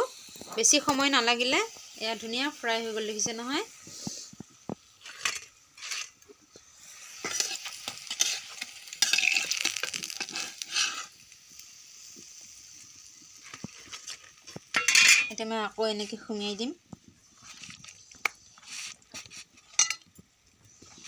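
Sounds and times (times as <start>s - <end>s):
slices sizzling in hot oil: 0.0s - 21.0s
metal spatula scraping pan: 5.0s - 6.2s, 7.1s - 11.2s.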